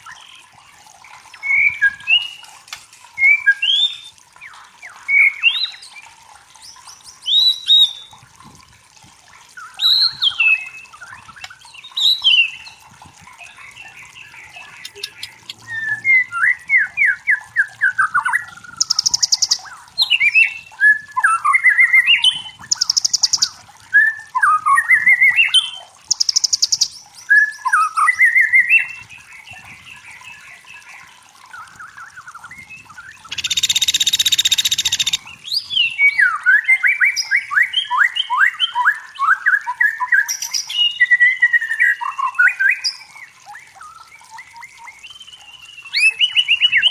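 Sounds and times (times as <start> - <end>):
songbird singing: 9.6 - 46.9.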